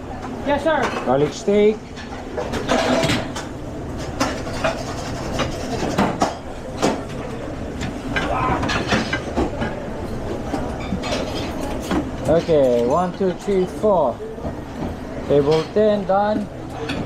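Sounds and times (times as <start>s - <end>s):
kitchen din: 0.2s - 17.0s
pans and utensils clattering: 0.6s - 7.2s, 7.8s - 9.8s, 10.4s - 13.6s.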